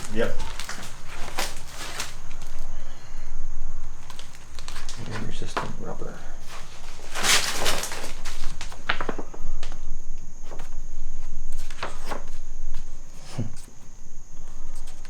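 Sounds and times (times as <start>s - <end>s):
footsteps on debris: 0.0s - 2.7s, 3.9s - 9.3s.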